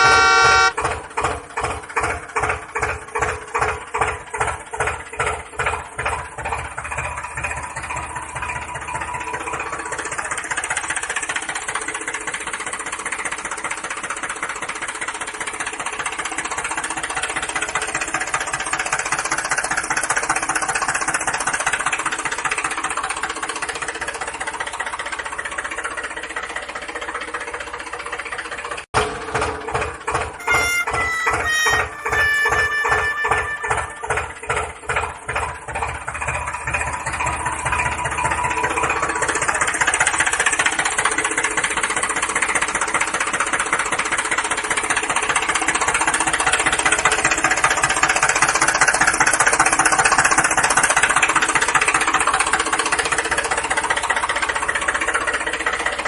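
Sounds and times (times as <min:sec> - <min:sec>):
tractor engine running: 0:00.0 - 0:14.4, 0:22.0 - 0:44.9.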